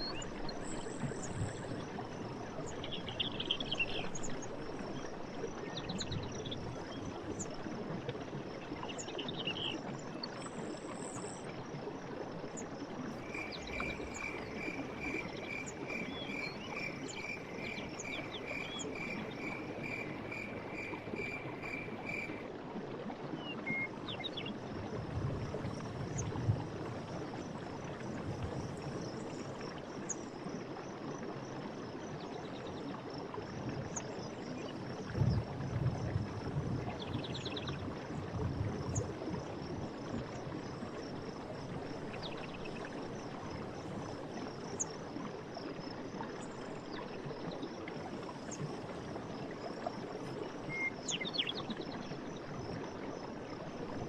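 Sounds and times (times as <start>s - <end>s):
stream water gurgling: 0.0s - 54.0s
insect trill: 13.2s - 22.4s.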